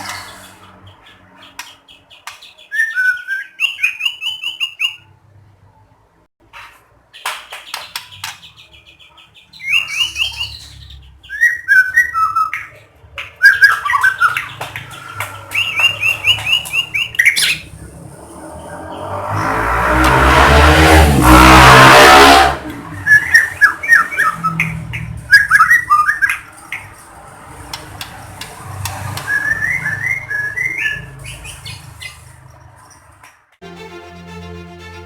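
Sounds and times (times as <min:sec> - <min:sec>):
songbird singing whistles: 0:01.4 - 0:05.1, 0:07.6 - 0:17.6, 0:23.0 - 0:26.4, 0:29.2 - 0:32.2
bird high chattering: 0:13.5 - 0:17.8.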